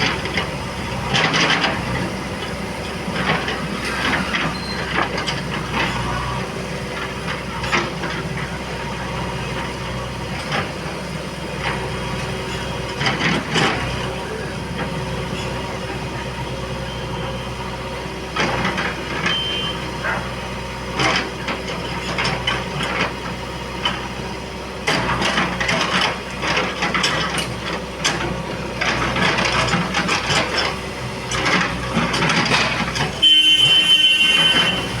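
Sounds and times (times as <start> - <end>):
digging machinery engine running: 0.0 - 35.0
clanks and scraping knocks: 24.9 - 35.0.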